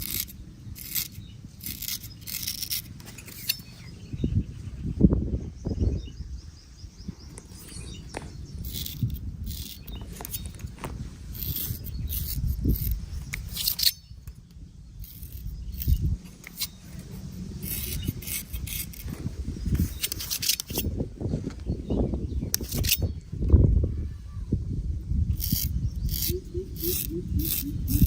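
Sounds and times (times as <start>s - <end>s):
blade scraping hair: 0.0s - 4.0s, 7.3s - 21.0s, 22.5s - 23.2s, 25.3s - 28.0s
low rumbling handling noise: 0.0s - 24.0s.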